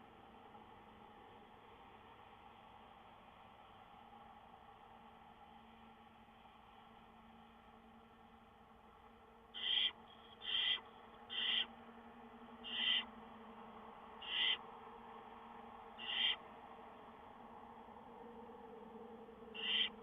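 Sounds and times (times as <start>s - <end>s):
barn owl rasping calls: 9.5s - 11.8s, 12.6s - 13.2s, 14.2s - 14.8s, 16.0s - 16.6s, 19.5s - 20.0s.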